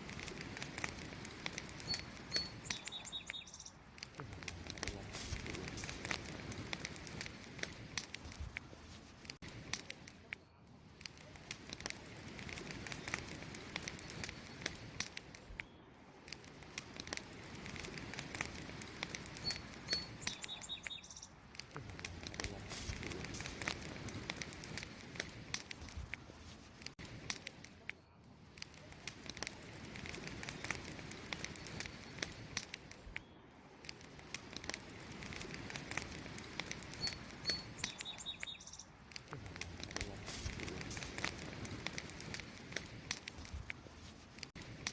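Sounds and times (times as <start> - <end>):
campfire crackling and popping: 0.0 - 44.9
bird chirps: 1.8 - 3.8, 19.4 - 21.4, 37.0 - 39.0.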